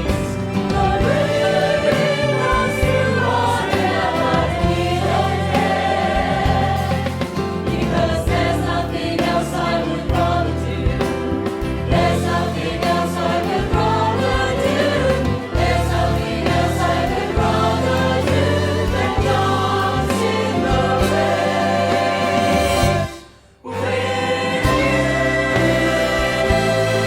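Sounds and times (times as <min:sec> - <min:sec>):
choir singing: 0:00.0 - 0:27.0
orchestral music: 0:00.0 - 0:27.0.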